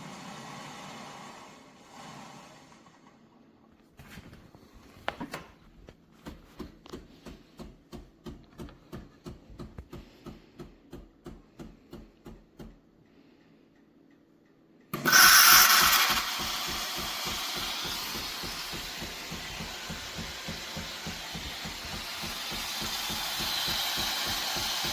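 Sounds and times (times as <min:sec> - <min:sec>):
espresso machine pulsing: 0:00.0 - 0:02.9, 0:15.0 - 0:24.9
steam hissing: 0:15.0 - 0:24.9.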